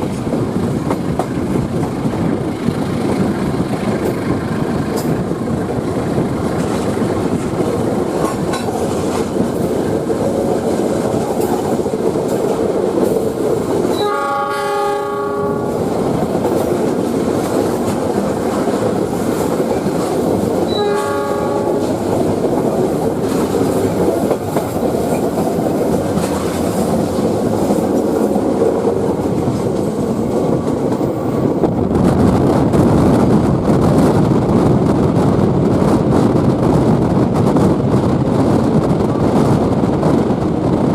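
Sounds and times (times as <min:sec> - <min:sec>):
train wheels rumbling on track: 0:00.0 - 0:40.9
train horn blasts: 0:13.9 - 0:15.8, 0:20.7 - 0:22.0.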